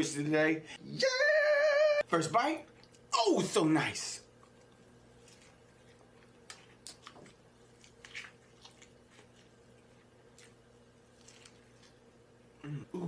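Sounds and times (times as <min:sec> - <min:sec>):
low steady hum: 0:00.0 - 0:13.0
wet chewing and mouth smacks: 0:04.3 - 0:12.2.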